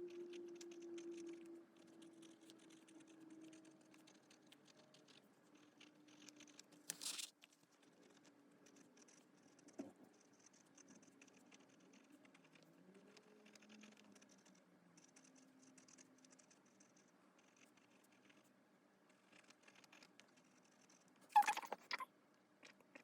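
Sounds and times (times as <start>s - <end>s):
pen scratching on paper: 0.0s - 18.5s, 19.1s - 22.0s
paper rustle: 6.8s - 7.6s.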